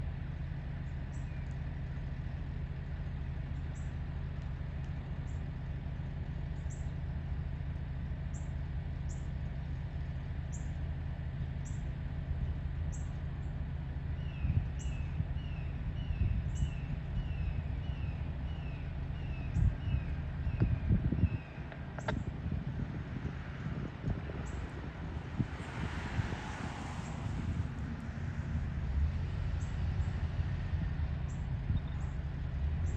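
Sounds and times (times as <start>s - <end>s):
low rumble: 10.9s - 32.9s
bird chirping: 14.2s - 22.1s, 31.3s - 32.2s.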